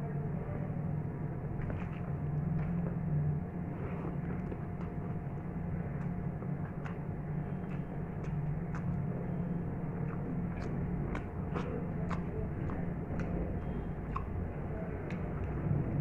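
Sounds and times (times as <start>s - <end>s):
steady low hum: 0.0s - 16.0s
person chewing with mouth clicks: 3.6s - 16.0s.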